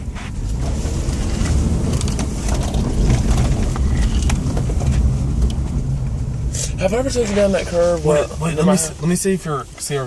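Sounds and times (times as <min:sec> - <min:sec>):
car engine and road noise: 0:00.0 - 0:10.0
faint clicks and rattles: 0:01.2 - 0:06.2.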